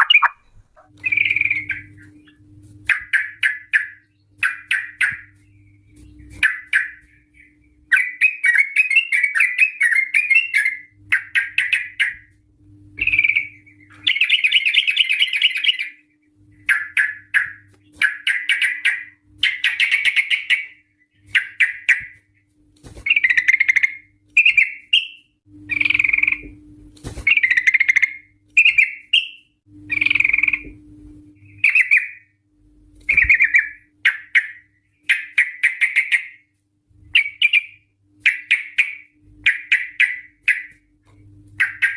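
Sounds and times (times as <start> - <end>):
bird bubbly chattering song: 0.0 - 5.3, 33.1 - 36.4.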